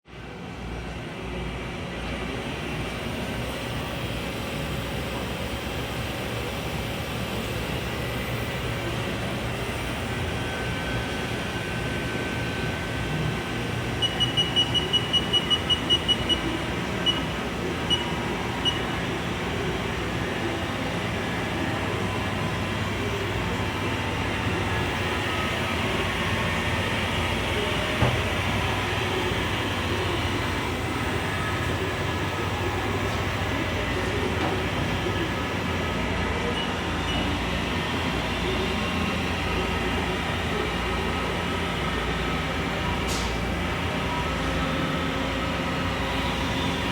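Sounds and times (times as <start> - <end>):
machinery humming: 0.1 - 46.9
short high-pitched beeps: 14.0 - 17.3.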